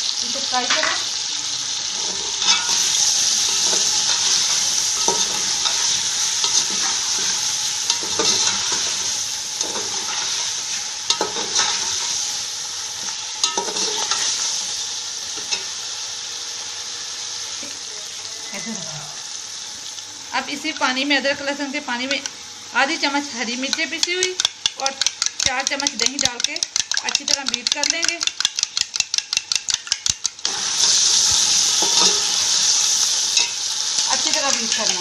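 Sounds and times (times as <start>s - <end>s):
chicken sizzling in oil: 0.0s - 35.0s
spoon scraping a pan: 1.9s - 12.3s, 13.0s - 14.7s, 23.6s - 35.0s.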